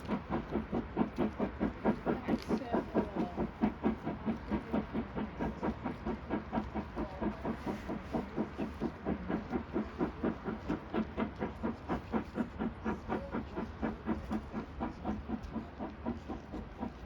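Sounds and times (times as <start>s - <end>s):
steam train running past: 0.0s - 17.0s.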